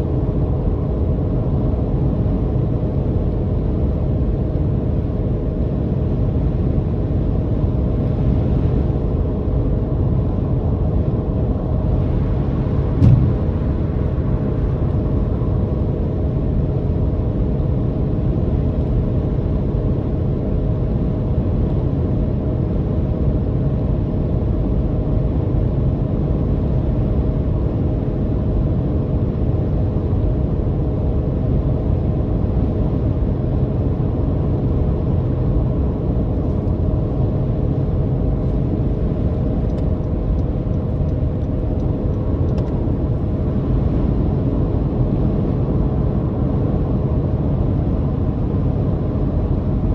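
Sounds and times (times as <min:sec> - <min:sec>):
road rumble: 0:11.4 - 0:15.5.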